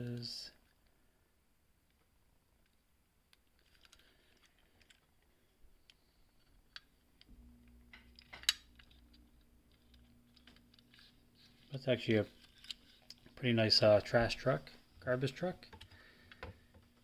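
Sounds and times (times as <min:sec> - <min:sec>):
faint low hum: 0:00.0 - 0:17.0
clicks and rustles of toy handling: 0:01.9 - 0:07.3, 0:08.2 - 0:13.4.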